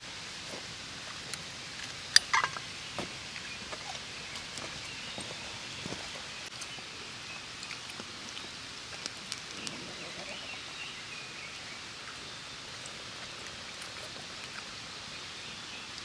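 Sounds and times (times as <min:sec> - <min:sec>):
small crackles: 0:00.4 - 0:10.6.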